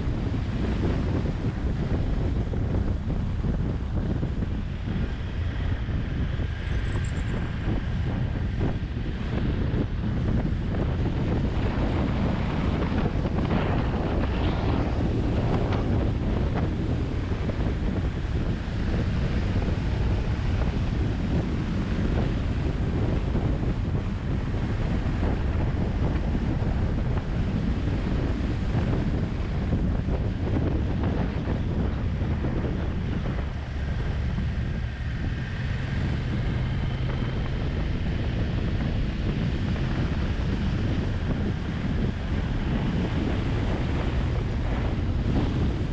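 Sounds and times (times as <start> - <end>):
faint motorcycle engine: 0.0 - 29.4
wind buffeting microphone: 0.0 - 45.9.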